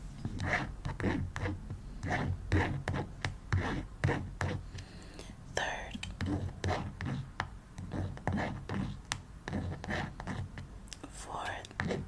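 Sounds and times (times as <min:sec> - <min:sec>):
pen scratching writing strokes: 0:00.2 - 0:04.6, 0:06.2 - 0:10.7, 0:11.5 - 0:12.0.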